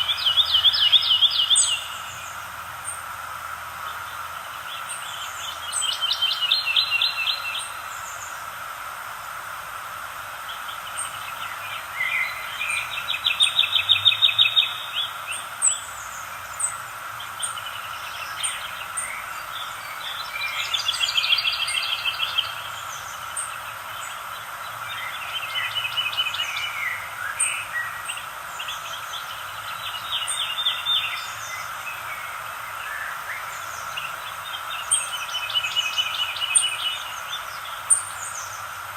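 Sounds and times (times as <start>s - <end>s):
background hiss: 0.0s - 38.9s
songbirds singing with trill: 0.0s - 38.9s.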